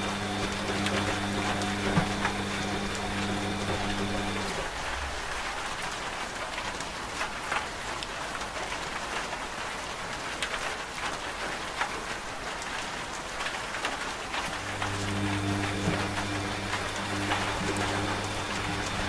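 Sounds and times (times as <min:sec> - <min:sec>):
rain falling on a surface: 0:00.0 - 0:19.0.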